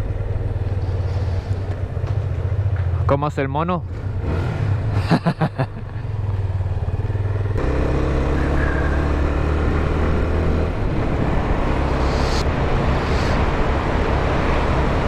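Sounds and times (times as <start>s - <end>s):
motorcycle engine running: 0.0s - 3.0s, 5.2s - 12.4s
wind rush: 10.2s - 15.0s.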